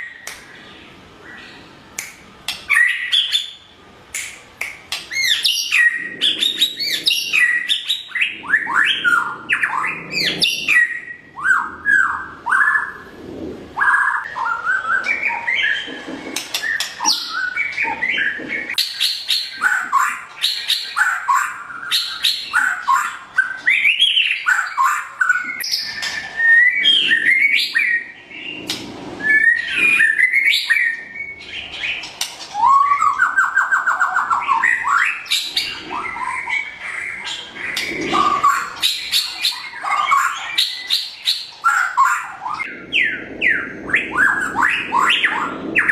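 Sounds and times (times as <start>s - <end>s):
bird singing whistles: 13.8s - 28.6s, 29.2s - 31.7s, 32.5s - 36.5s.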